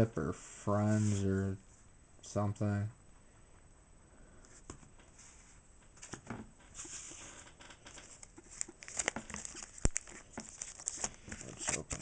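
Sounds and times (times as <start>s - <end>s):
trading cards rustling: 6.0s - 12.0s
foil wrapper rustling: 8.0s - 12.0s.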